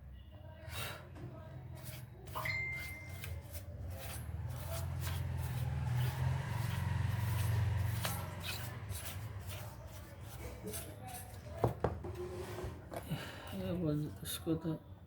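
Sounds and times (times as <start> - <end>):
brush scraping strokes: 1.7 - 11.6.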